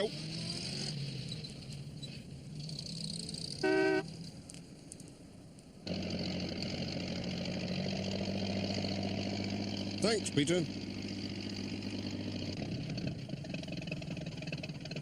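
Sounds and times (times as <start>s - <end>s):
van engine humming: 0.0s - 15.0s
van horn toot: 3.6s - 4.1s.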